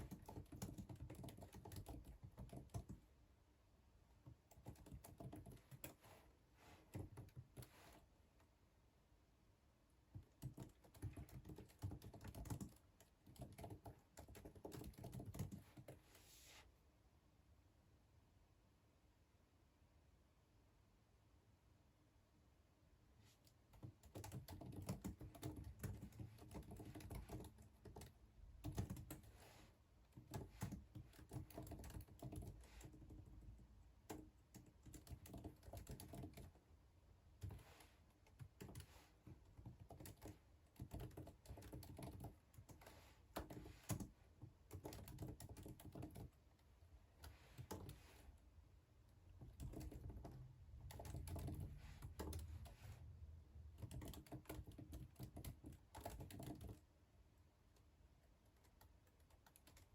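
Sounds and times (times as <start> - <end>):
faint keyboard typing: 0.0 - 3.3, 4.1 - 8.6, 10.0 - 16.5, 23.2 - 59.9.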